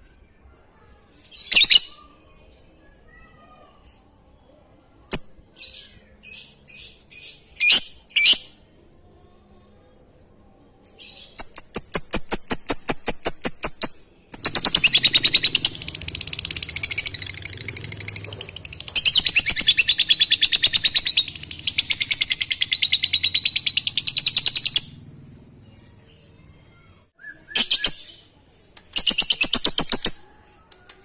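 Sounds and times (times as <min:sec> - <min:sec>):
bird ticking notes: 0:11.4 - 0:24.8
bird chattering trill: 0:11.4 - 0:25.0, 0:29.0 - 0:30.3.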